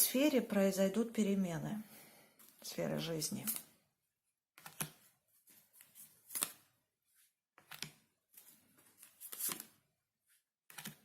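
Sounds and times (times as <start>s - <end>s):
cards rustling and snapping: 3.4s - 3.8s, 4.6s - 6.8s, 7.6s - 11.0s.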